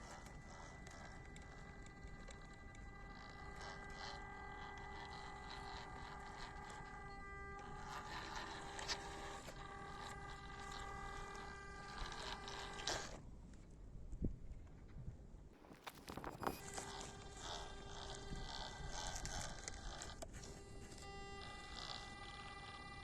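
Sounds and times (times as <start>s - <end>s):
small electric motor whining: 0.0s - 13.2s, 15.6s - 23.0s
tyres crunching over rough ground: 15.6s - 16.6s.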